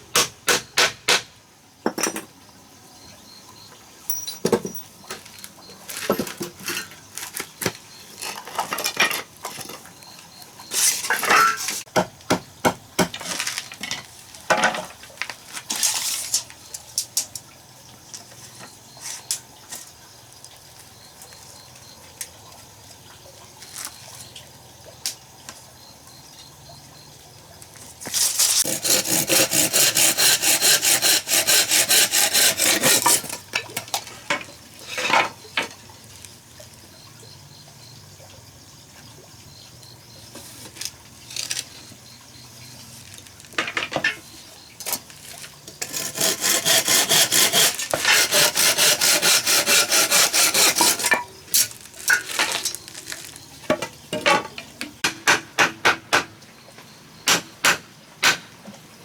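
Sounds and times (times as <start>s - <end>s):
pots and pans clinking: 4.1s - 5.0s, 11.0s - 11.8s, 50.6s - 54.8s
rapid chopping or whisking: 28.6s - 33.2s, 45.9s - 51.1s.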